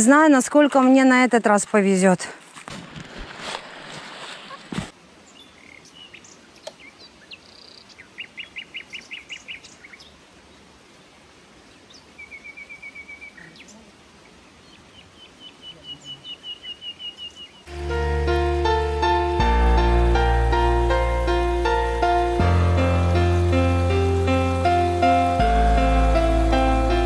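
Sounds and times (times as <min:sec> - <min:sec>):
faint background hiss: 0:00.0 - 0:27.0
songbirds chirping: 0:05.1 - 0:17.9.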